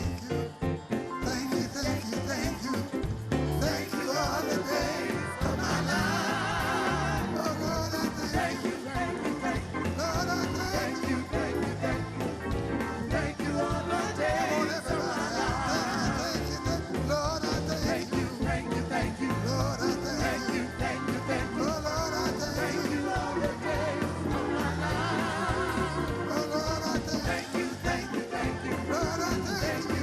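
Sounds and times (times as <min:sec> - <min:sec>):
gospel singing over a band: 0:00.0 - 0:30.0.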